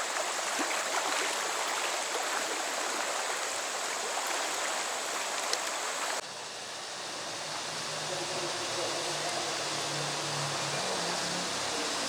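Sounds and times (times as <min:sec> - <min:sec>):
stream water rushing: 0:00.0 - 0:06.2.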